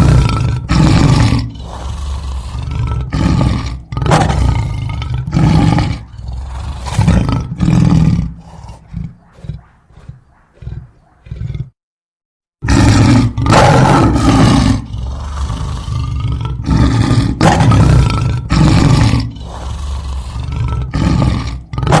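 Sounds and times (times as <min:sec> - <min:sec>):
loud animal calls: 0:00.0 - 0:11.7, 0:18.9 - 0:22.0.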